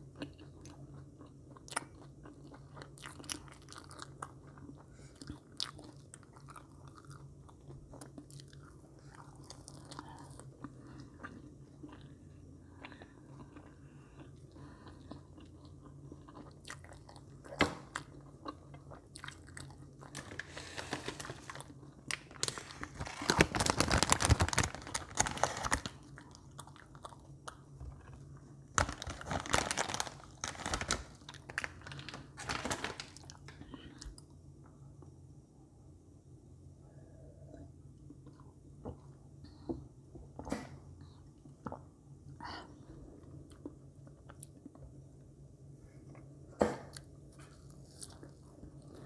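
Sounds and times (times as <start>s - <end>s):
chewing marshmallows: 0.0s - 35.2s, 43.1s - 45.3s, 46.0s - 49.0s
plastic bag crinkling: 20.1s - 26.1s, 28.7s - 33.5s.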